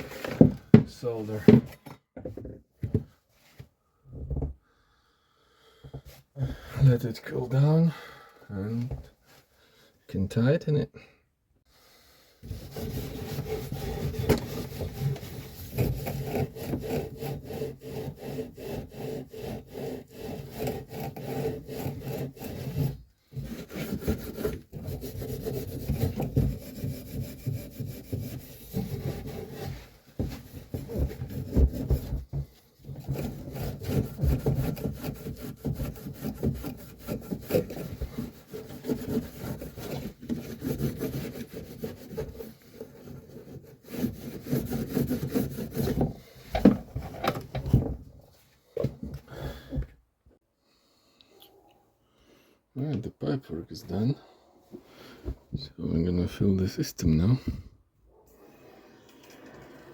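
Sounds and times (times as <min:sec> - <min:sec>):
hand tool rasping strokes: 0:12.4 - 0:47.4.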